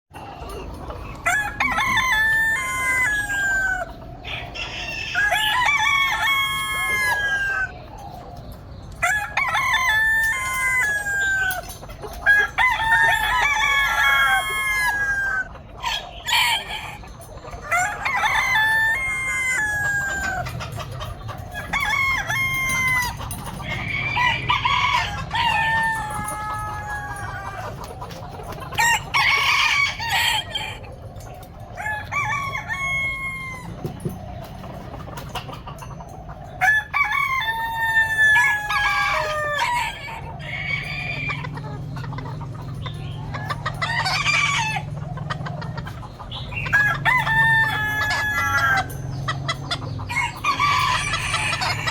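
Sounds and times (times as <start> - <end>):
roosters crowing: 0.2 - 51.9.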